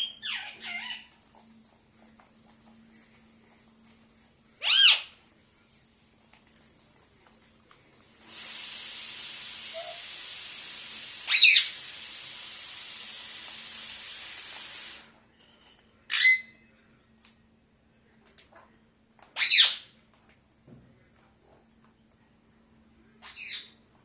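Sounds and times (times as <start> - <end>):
parakeet squawks: 0.0 - 1.1, 4.6 - 5.2, 11.3 - 11.8, 16.1 - 16.6, 19.4 - 19.9, 23.2 - 23.8
steady hiss: 1.6 - 15.3.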